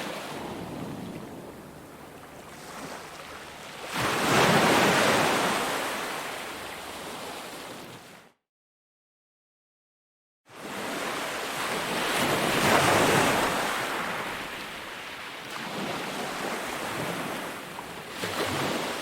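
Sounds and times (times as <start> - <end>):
ocean waves breaking on beach: 0.0 - 8.2, 10.5 - 19.0.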